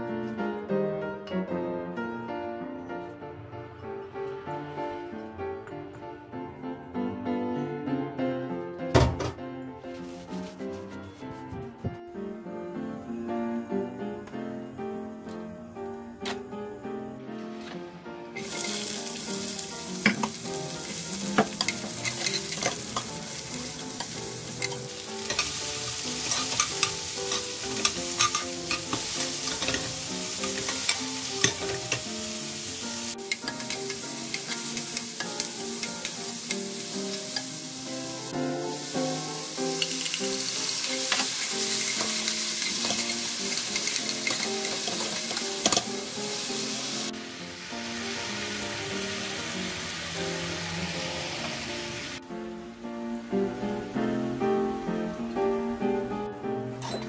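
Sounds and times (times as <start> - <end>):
vegetables sizzling in a frying pan: 18.4 - 52.2.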